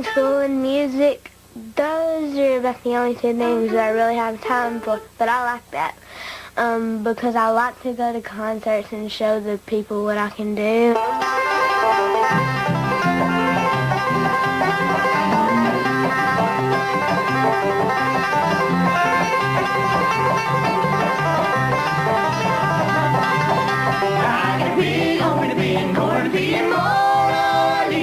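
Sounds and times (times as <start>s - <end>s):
guitar accompaniment: 3.3s - 5.6s, 10.9s - 28.0s
banjo picking quick rolls: 11.0s - 28.0s
person singing: 24.0s - 28.0s.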